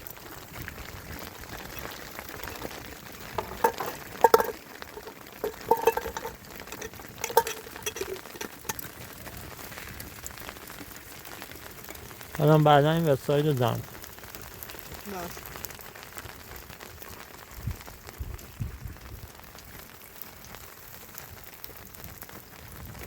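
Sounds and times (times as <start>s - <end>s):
clinks and light knocks: 2.4s - 8.9s
steady hiss: 12.4s - 13.9s.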